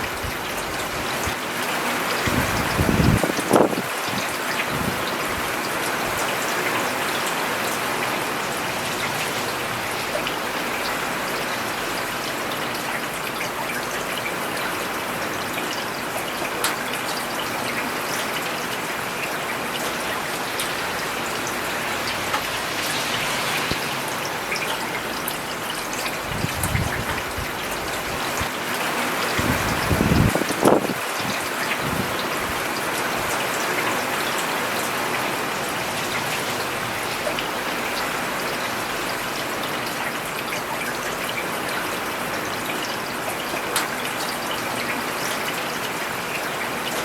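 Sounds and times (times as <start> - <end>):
rain falling on a road: 0.0 - 47.0.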